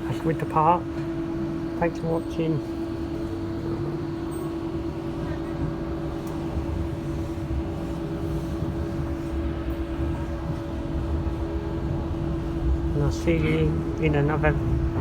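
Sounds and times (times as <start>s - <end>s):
train rumbling inside carriage: 0.0s - 15.0s.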